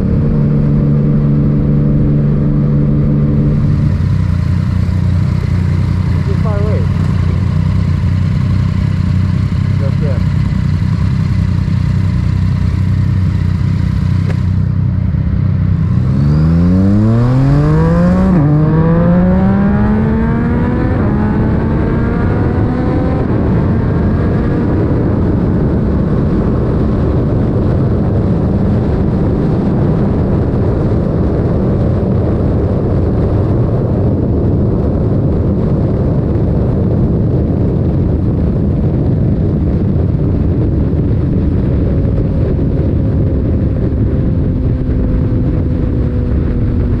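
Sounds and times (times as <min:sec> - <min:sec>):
motorcycle engine revving: 0:00.0 - 0:47.0
wind rushing: 0:10.7 - 0:47.0.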